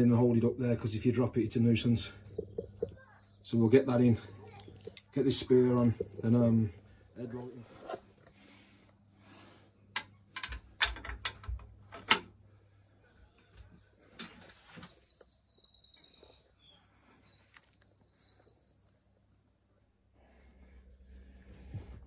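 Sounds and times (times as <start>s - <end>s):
small bird chirping rapidly: 2.2s - 6.9s, 13.9s - 19.1s
sharp clicks and knocks of parts: 9.9s - 12.4s.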